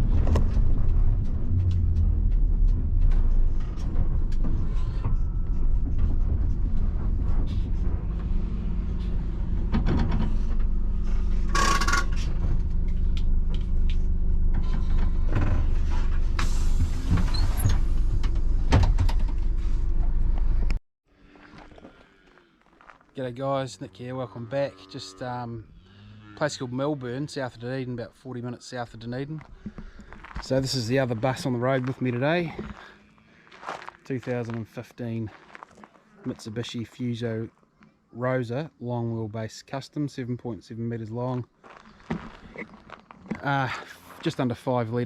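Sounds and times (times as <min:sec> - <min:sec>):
bus diesel engine humming: 0:00.0 - 0:04.4, 0:06.4 - 0:20.8
rattles and knocks: 0:00.0 - 0:20.8.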